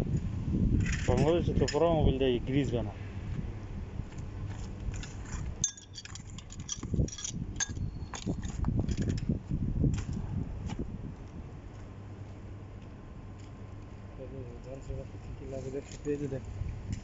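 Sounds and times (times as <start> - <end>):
low background rumble: 0.0 - 17.0
metal parts clinking and rattling: 4.5 - 9.3.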